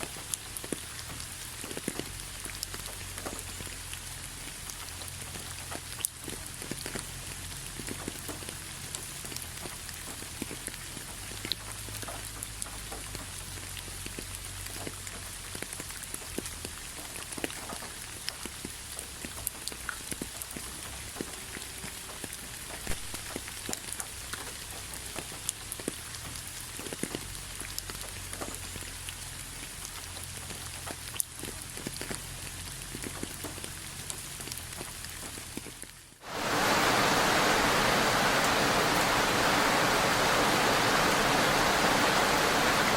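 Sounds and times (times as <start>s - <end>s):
rain drops tapping: 0.0s - 42.9s
rushing hiss: 36.2s - 42.9s.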